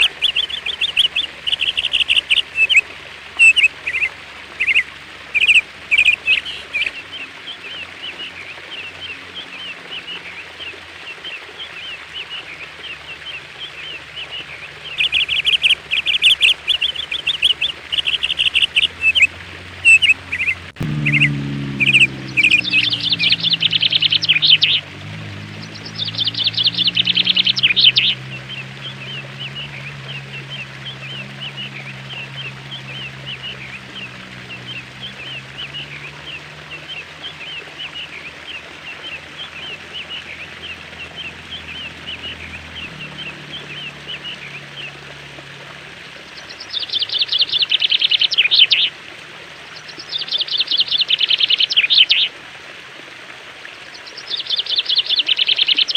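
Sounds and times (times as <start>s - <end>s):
songbirds trilling: 0.0s - 52.3s, 53.6s - 55.9s
quick repeated bird chirps: 3.4s - 4.8s, 5.4s - 7.0s, 14.9s - 24.8s, 25.6s - 28.2s
low steady hum: 12.3s - 48.3s.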